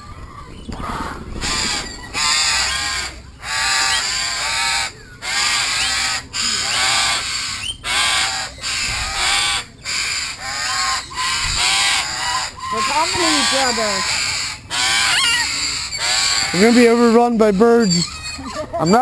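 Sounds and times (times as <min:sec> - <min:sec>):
birds harsh wavering calls: 0:00.0 - 0:19.0.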